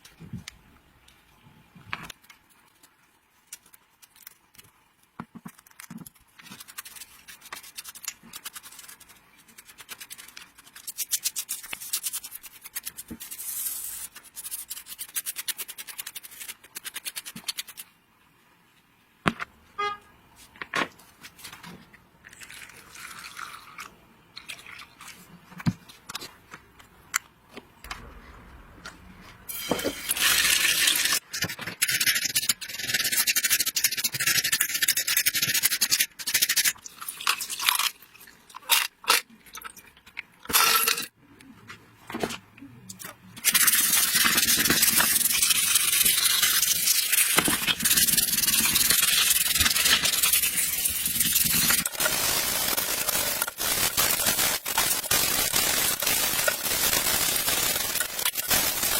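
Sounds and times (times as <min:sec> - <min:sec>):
loud steady hiss: 0:48.4 - 0:58.9.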